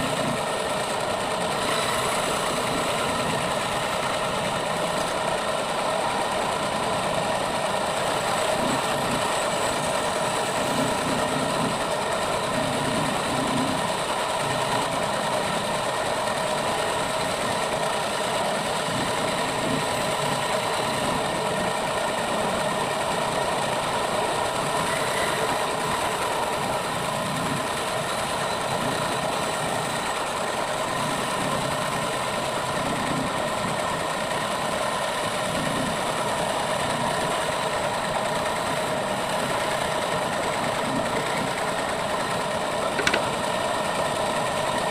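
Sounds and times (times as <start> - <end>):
electric motor humming: 42.7 - 43.5.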